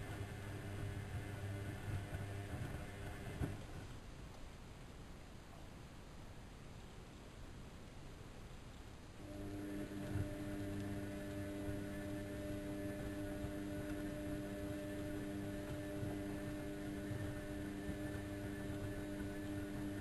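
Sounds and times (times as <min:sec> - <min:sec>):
washing machine humming: 0:00.0 - 0:04.0, 0:09.2 - 0:20.0.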